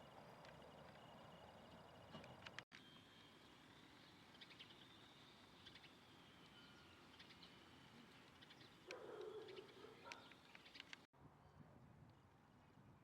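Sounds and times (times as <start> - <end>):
birds chirping: 3.4 - 11.1.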